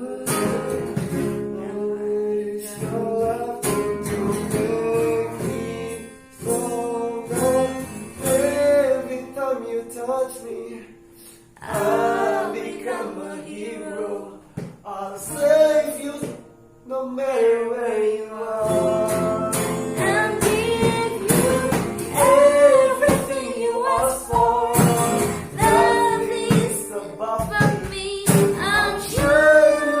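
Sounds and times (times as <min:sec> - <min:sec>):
woman singing: 0:00.0 - 0:03.4, 0:18.8 - 0:30.0.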